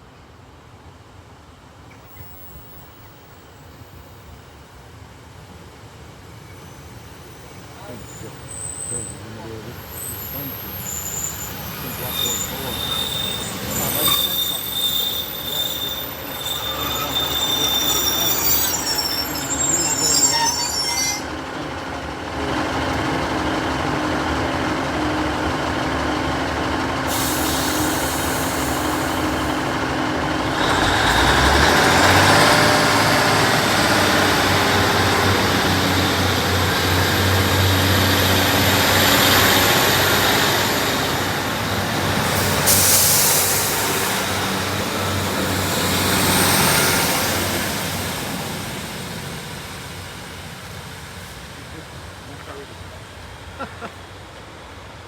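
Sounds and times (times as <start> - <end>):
train rail noise: 0.8 - 55.0
wheel squeal: 6.5 - 21.4, 27.1 - 49.4
diesel engine drone: 21.3 - 53.3.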